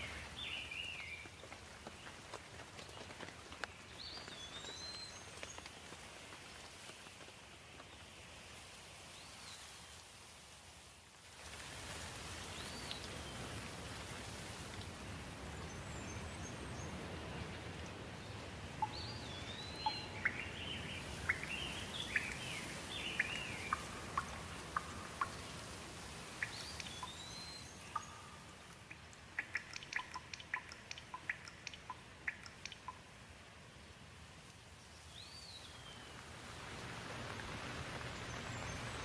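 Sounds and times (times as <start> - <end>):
running water hiss: 8.2 - 39.0.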